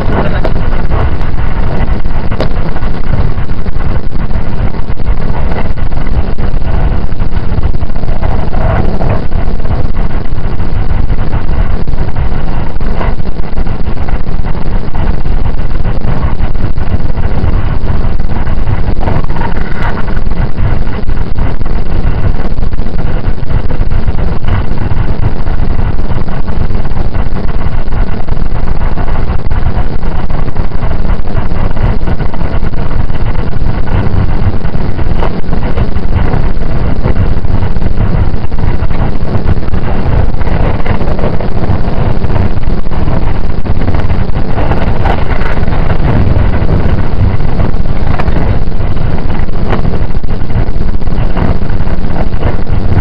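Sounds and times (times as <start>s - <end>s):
train running rumble: 0.0s - 53.0s.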